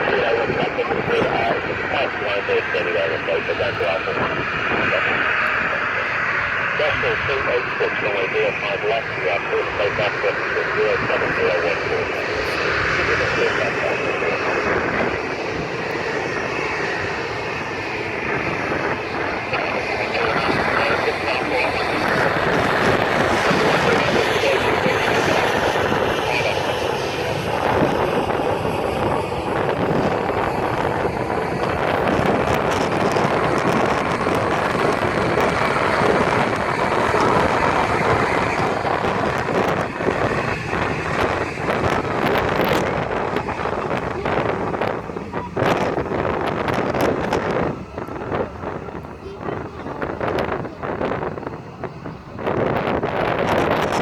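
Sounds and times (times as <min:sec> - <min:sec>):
airliner engines at takeoff: 0:00.0 - 0:54.0
wind buffeting microphone: 0:00.0 - 0:54.0.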